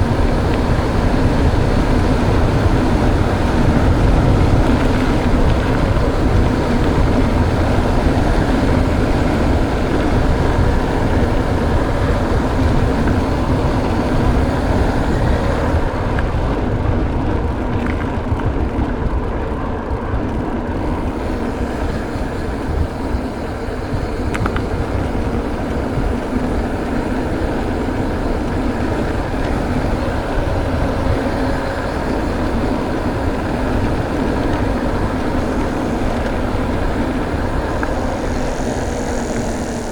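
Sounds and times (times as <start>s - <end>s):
mountain bike tyre noise: 0.0s - 39.9s
wind rush over microphone: 0.0s - 39.9s.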